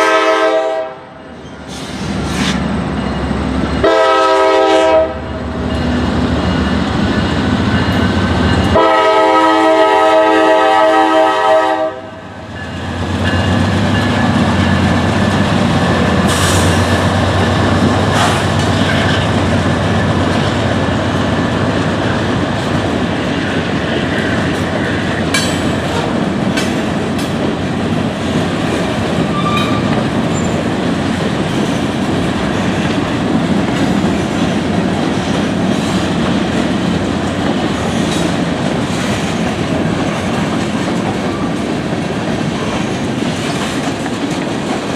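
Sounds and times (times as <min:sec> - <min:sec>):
diesel locomotive engines humming: 0:00.0 - 0:44.9
wheels clicking over rail joints: 0:23.6 - 0:44.9.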